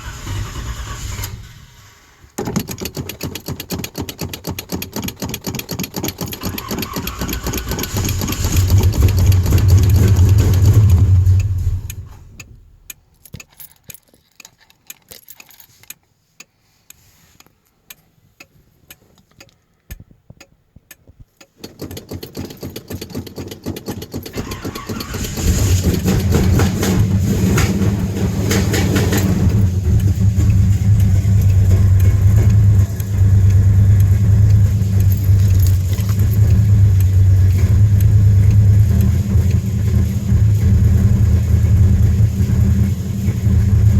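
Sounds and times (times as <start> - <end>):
engine cranking: 0.0 - 16.0, 21.4 - 43.9
car engine revving: 6.4 - 12.9, 24.3 - 43.9.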